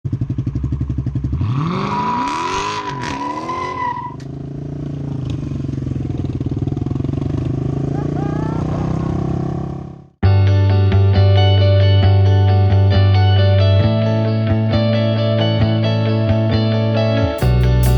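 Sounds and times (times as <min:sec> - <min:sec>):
vehicle engine revving: 0:01.1 - 0:05.8.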